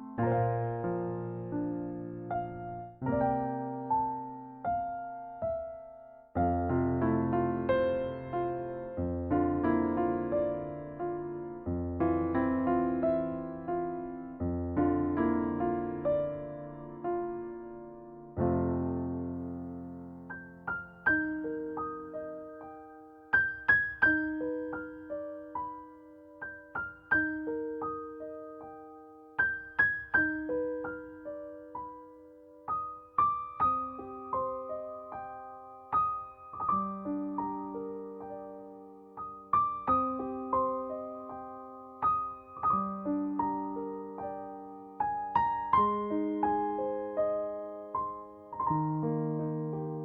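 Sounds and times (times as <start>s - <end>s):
gentle solo piano music: 0.0s - 50.0s.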